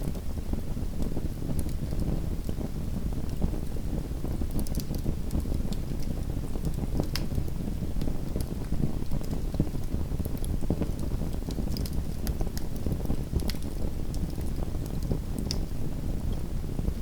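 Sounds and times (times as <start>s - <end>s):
wood fire crackling: 4.6s - 15.8s.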